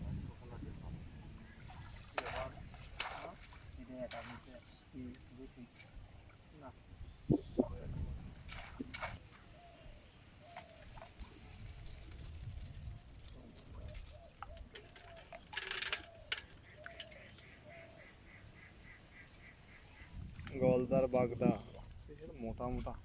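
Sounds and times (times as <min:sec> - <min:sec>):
birds calling: 0:12.8 - 0:21.8.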